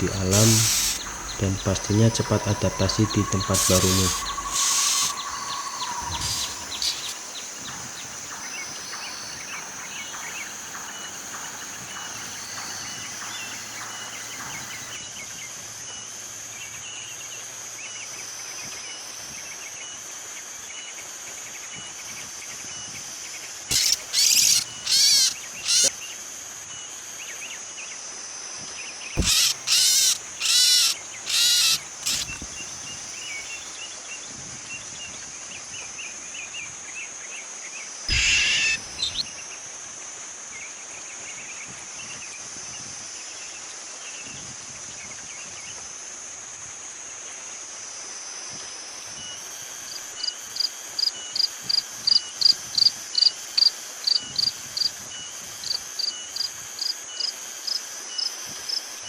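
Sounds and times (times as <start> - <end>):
insect drone: 0.0 - 15.0, 23.7 - 27.2, 29.2 - 34.2, 37.9 - 39.5, 47.4 - 59.0
loud calls: 0.0 - 15.0, 23.7 - 25.9, 29.2 - 33.8, 38.1 - 39.2
regular chirps: 0.0 - 15.0, 23.7 - 25.9, 29.2 - 33.8, 38.1 - 39.3.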